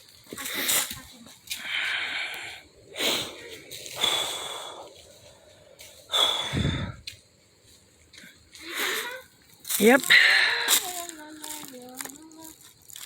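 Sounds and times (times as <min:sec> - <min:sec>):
person breathing hard: 0:01.6 - 0:07.1, 0:10.1 - 0:10.8.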